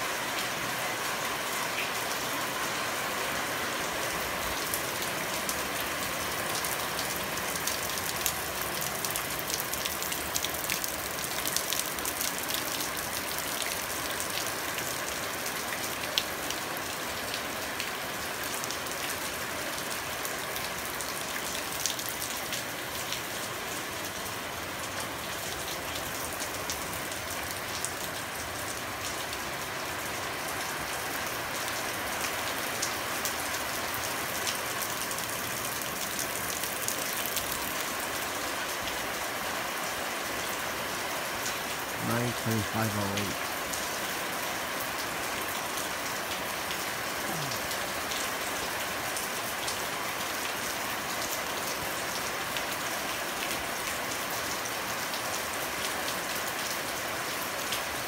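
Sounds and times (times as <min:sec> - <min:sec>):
rain on wet pavement: 0:00.0 - 0:58.0.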